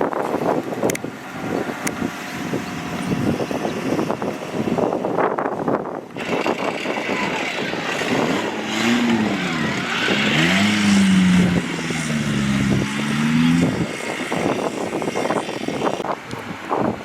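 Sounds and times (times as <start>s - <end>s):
off-road engine revving: 6.1s - 16.1s.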